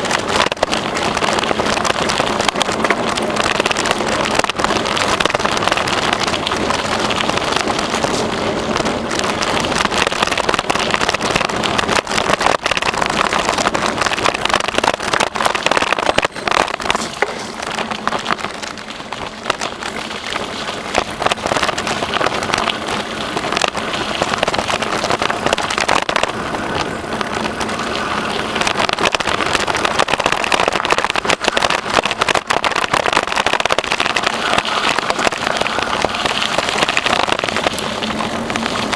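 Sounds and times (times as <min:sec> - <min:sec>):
bicycle tyres rattling on trail: 0:00.0 - 0:38.9.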